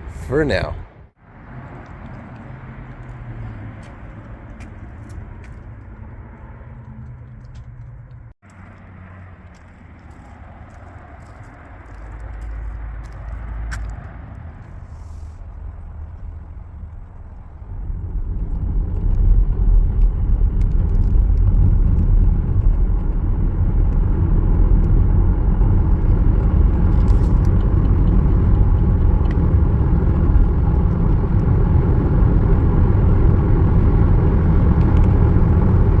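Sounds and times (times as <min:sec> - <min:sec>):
loud low rumble: 0:12.6 - 0:36.0.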